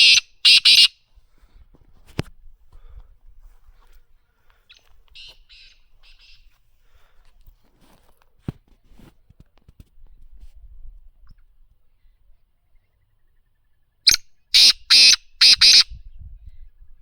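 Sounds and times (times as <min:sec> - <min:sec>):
francolin rasping calls: 0:00.0 - 0:01.0, 0:04.7 - 0:06.5, 0:14.0 - 0:15.9.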